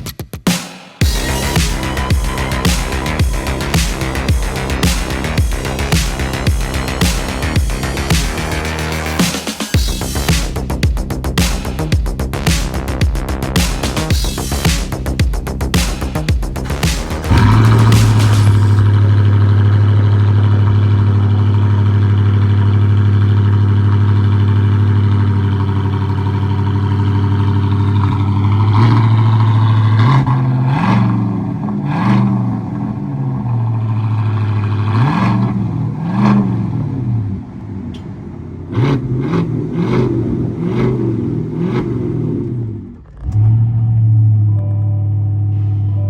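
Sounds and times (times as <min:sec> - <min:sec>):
truck engine idling: 0:01.0 - 0:09.3, 0:16.5 - 0:30.0
engine revving: 0:01.0 - 0:44.4.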